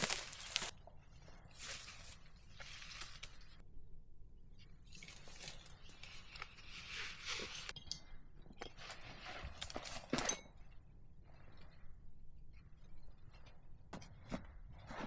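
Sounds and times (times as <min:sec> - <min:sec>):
crunching of dry forest litter: 0:00.0 - 0:00.7, 0:01.5 - 0:03.6.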